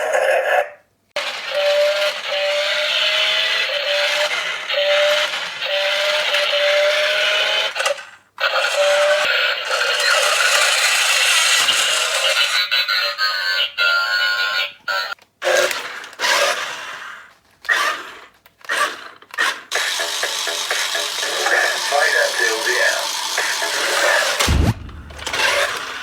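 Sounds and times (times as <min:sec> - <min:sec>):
tinny electronic toy music: 0:08.5 - 0:15.2.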